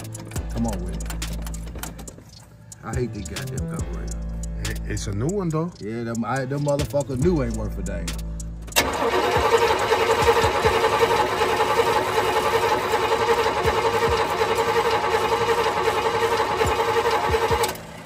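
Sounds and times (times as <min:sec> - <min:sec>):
engine cranking on starter: 0:06.1 - 0:18.0.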